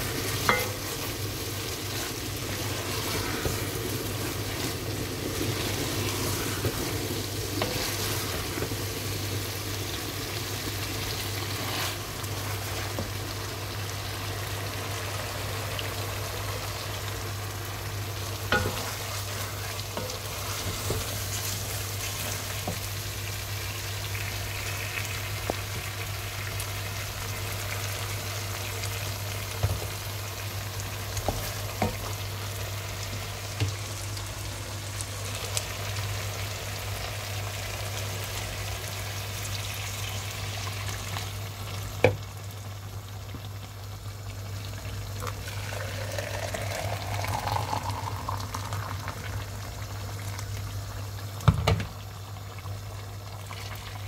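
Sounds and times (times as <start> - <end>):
food sizzling in a pot: 0.0 - 54.0
water filling a plastic jug: 45.4 - 49.2.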